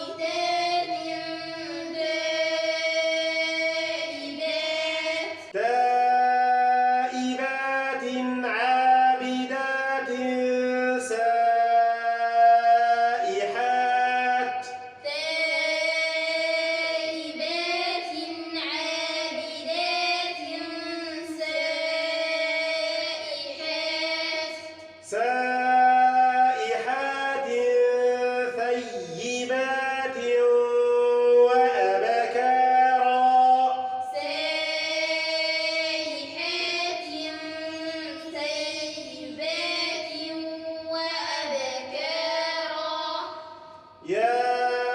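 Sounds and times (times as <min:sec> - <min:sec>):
children chanting in chorus: 0:00.0 - 0:05.6, 0:14.6 - 0:25.2, 0:31.6 - 0:44.9
man chanting a verse: 0:05.5 - 0:14.9, 0:25.0 - 0:34.1, 0:44.0 - 0:44.9.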